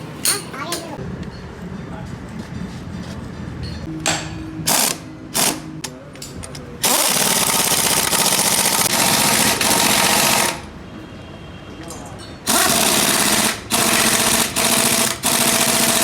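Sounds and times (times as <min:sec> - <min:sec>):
hammering power tool rattling: 0:12.5 - 0:16.0.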